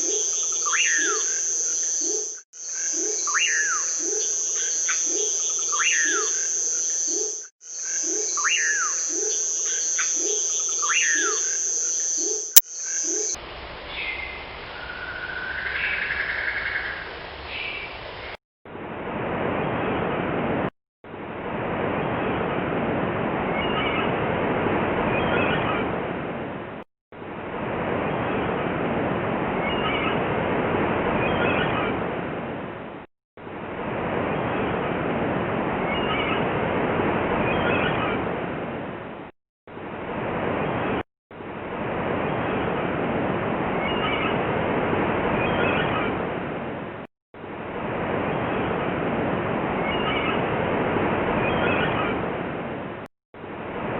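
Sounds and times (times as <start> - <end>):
gull cries: 0.0 - 13.4.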